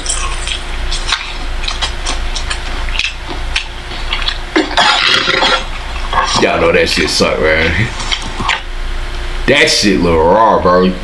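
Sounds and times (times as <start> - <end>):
people chewing crispy chicken: 0.0 - 6.6, 7.6 - 8.7.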